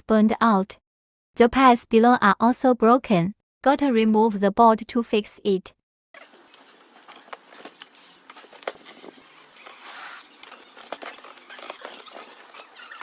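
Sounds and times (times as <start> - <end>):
hand tools clicking and rattling: 6.2 - 13.0.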